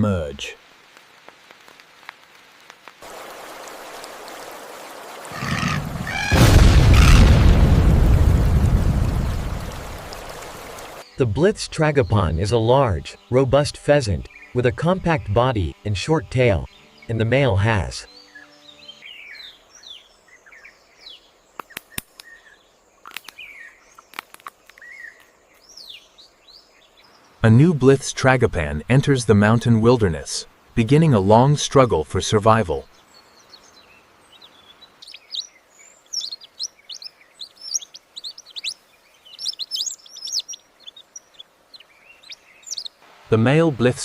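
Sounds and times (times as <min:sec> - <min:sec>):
rain hissing: 0:00.0 - 0:11.2, 0:34.0 - 0:44.0
birds chirping: 0:03.0 - 0:44.0
harsh animal call: 0:05.3 - 0:07.5
deep thunder rumble: 0:05.8 - 0:10.4
sharp clicks or snaps: 0:21.6 - 0:22.4, 0:23.1 - 0:23.4.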